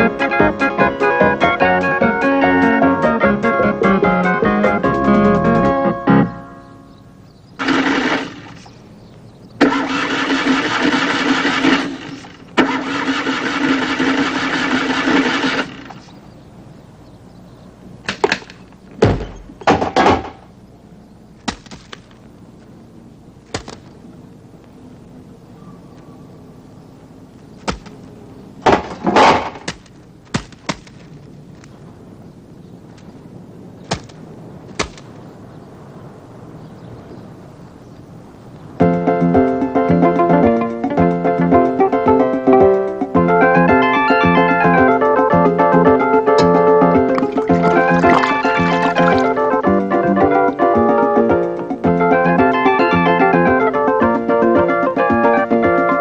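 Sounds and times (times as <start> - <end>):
faint steady background noise: 0.0 - 56.0
car engine cranking: 7.6 - 16.3, 46.0 - 49.8
clattering impacts: 18.0 - 20.5, 27.6 - 31.2.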